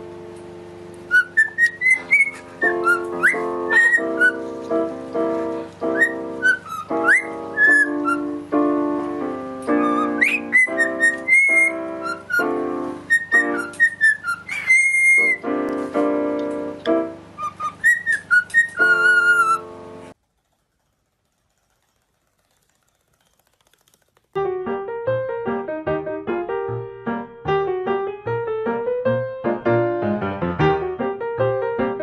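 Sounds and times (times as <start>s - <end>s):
piano chords: 0.0s - 20.2s, 24.4s - 32.0s
cockatiel whistling: 1.1s - 4.4s, 5.8s - 8.4s, 9.7s - 15.5s, 17.4s - 19.7s.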